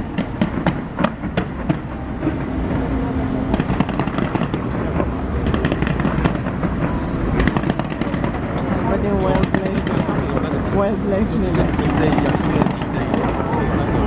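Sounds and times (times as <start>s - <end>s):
fireworks bangs and crackle: 0.0s - 2.5s, 3.5s - 14.0s
low rumble: 0.0s - 14.0s.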